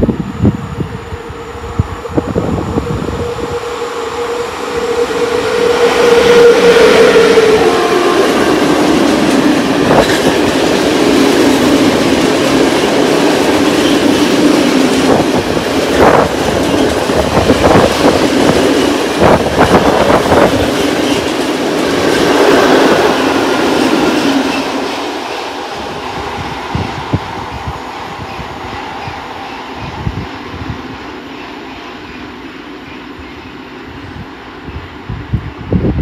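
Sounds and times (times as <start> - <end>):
train wheels rumbling on rail: 0.0 - 36.0
wheels clacking over rail joints: 6.7 - 25.7.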